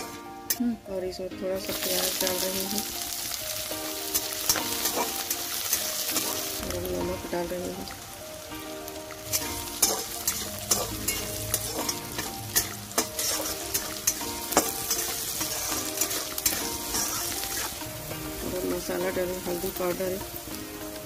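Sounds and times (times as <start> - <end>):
metal spatula scraping a pan: 0.0 - 0.6, 4.0 - 6.7, 9.3 - 18.0
onion sizzling in hot oil: 0.0 - 21.0.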